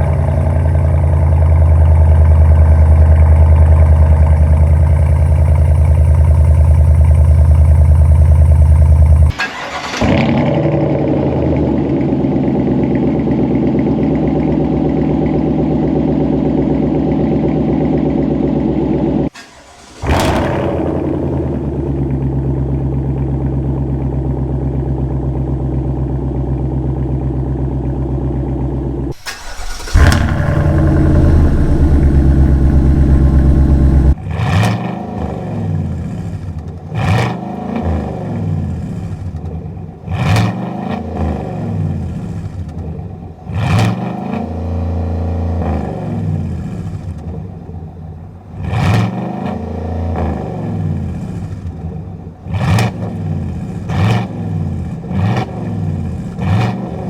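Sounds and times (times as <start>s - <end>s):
engine idling: 0.0s - 9.3s, 19.4s - 34.2s
engine starting: 9.3s - 10.5s, 19.3s - 21.3s, 29.1s - 34.2s
engine revving: 19.4s - 22.2s, 29.1s - 36.4s, 40.1s - 42.5s, 53.9s - 57.0s.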